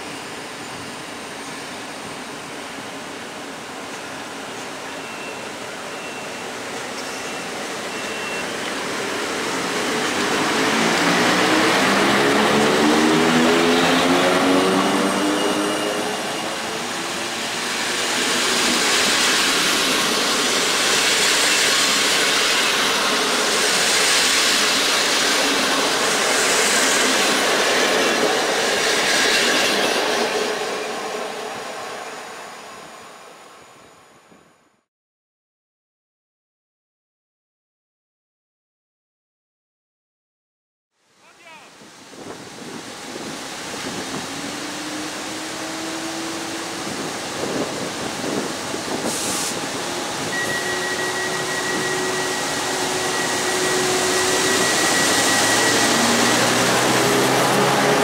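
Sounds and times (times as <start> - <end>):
coach wheel noise: 42.6 - 58.0
electric locomotive motor whine: 42.6 - 58.0.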